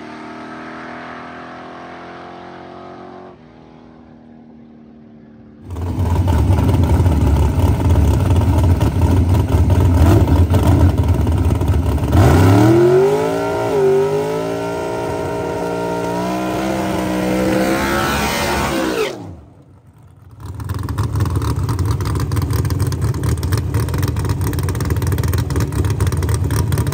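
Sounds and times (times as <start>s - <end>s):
race car engine accelerating: 0.0s - 19.7s.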